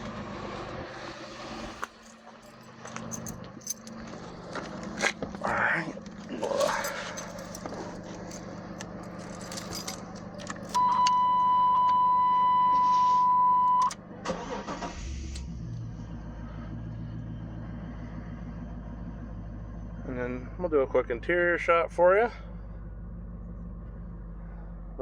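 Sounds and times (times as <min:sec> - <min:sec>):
truck engine starting and idling: 0:00.0 - 0:25.0
keys jingling: 0:01.8 - 0:05.2, 0:06.3 - 0:10.9.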